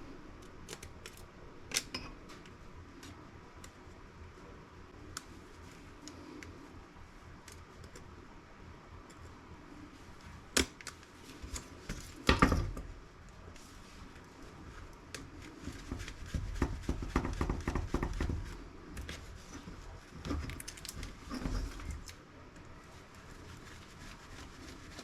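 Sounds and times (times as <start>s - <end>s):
clattering and rustling handling: 11.0s - 25.0s.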